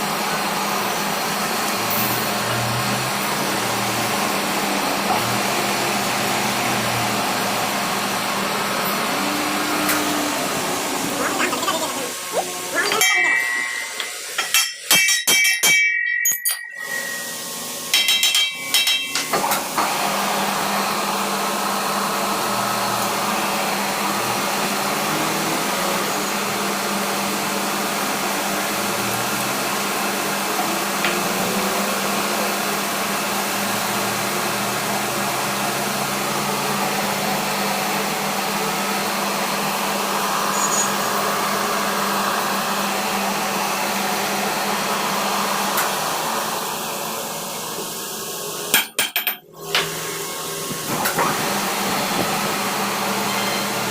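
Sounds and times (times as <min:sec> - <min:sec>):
workshop machine running: 0:00.0 - 0:53.9
ringing metal strikes: 0:12.9 - 0:19.3.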